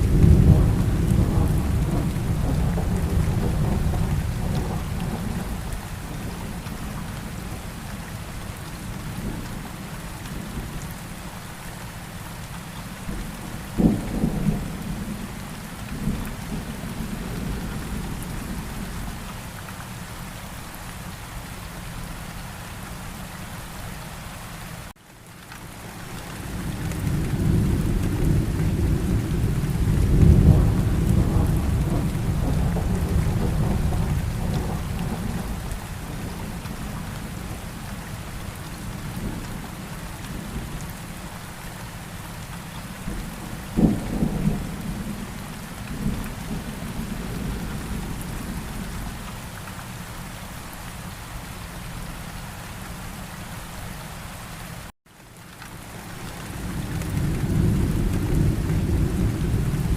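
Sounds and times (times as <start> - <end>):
thunder rumbling: 0.0 - 7.6, 13.1 - 19.2, 26.4 - 40.8, 43.0 - 49.2, 56.2 - 59.9
steady rain: 0.0 - 59.9.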